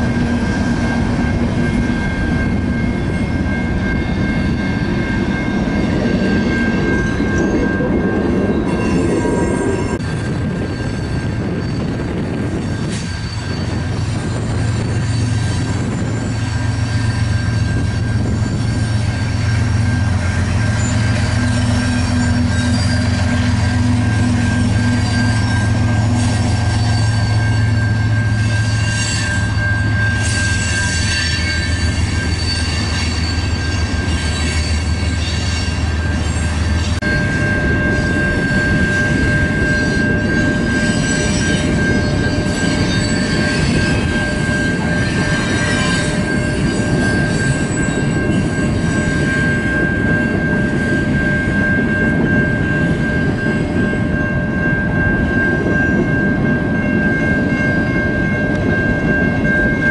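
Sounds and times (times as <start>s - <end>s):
diesel locomotive engine drone: 0.0s - 59.9s
freight cars rumbling: 0.0s - 59.9s
thin wheel squeal: 8.6s - 52.8s.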